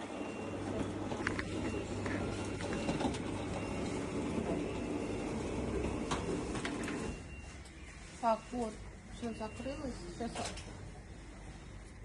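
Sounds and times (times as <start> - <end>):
roller shutter rumbling down: 0.5 - 7.2.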